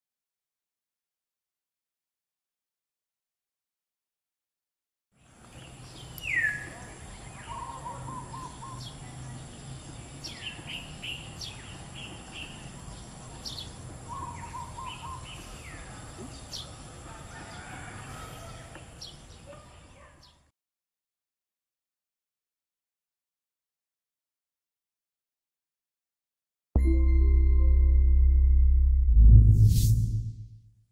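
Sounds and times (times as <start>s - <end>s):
wild birds calling: 5.2s - 20.5s
low hum: 26.8s - 30.8s.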